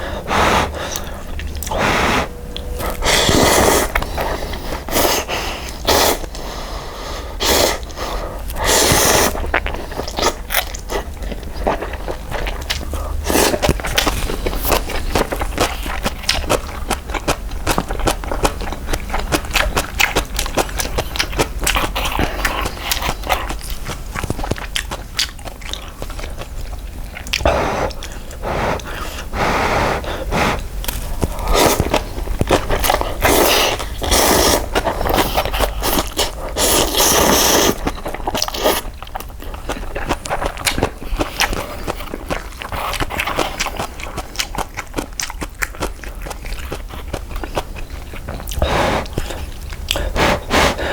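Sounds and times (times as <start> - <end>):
wet chewing and smacking: 0.0 - 6.4, 7.8 - 29.4, 30.0 - 50.9
noodle slurping: 0.0 - 6.6, 7.3 - 16.4, 27.3 - 39.0, 48.5 - 50.9.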